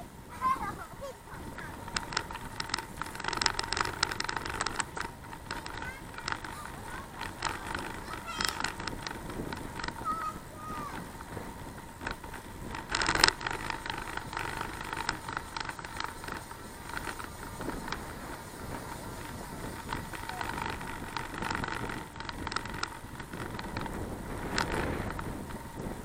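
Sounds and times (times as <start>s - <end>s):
bicycle clicks and rattles: 0.0s - 26.0s
bicycle riding rush: 0.0s - 26.0s.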